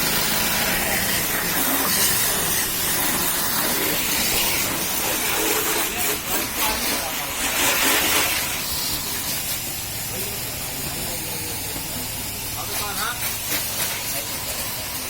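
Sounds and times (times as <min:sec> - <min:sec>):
water spray hissing: 0:00.0 - 0:15.0.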